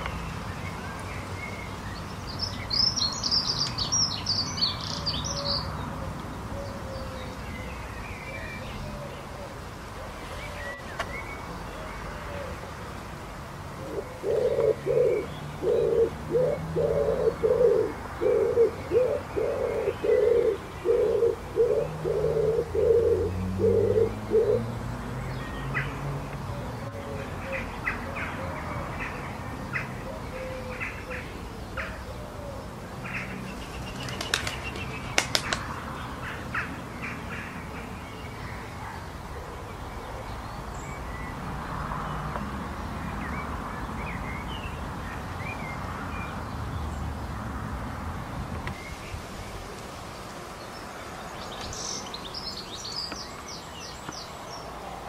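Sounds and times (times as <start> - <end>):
outdoor background hiss: 0.0 - 55.0
bird hooting: 13.8 - 24.7.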